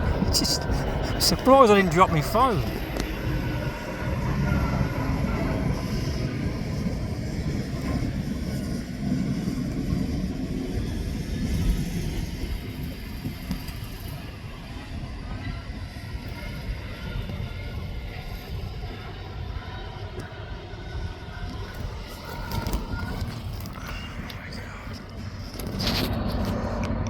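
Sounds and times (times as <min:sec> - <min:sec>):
diesel earthmoving machinery rumbling: 0:00.0 - 0:18.0.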